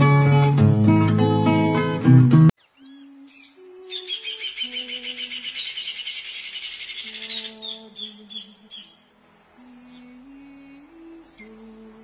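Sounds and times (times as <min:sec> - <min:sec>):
bird singing chattering notes: 0:02.6 - 0:10.0.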